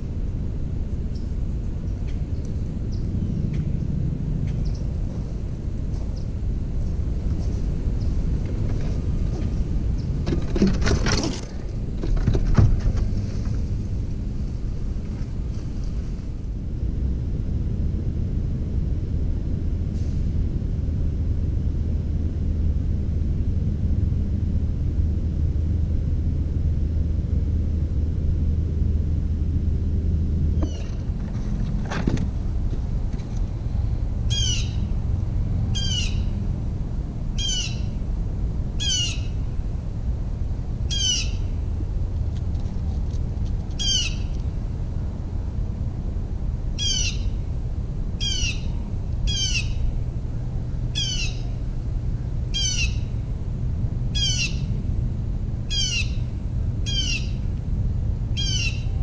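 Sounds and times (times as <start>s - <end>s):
low background rumble: 0.0s - 59.0s
bird calling: 30.6s - 31.0s, 34.3s - 34.9s, 35.7s - 36.4s, 37.4s - 38.0s, 38.8s - 39.4s, 40.9s - 41.6s, 43.8s - 44.4s, 46.8s - 47.4s, 48.2s - 50.0s, 51.0s - 51.6s, 52.5s - 53.2s, 54.1s - 54.8s, 55.7s - 57.5s, 58.4s - 59.0s.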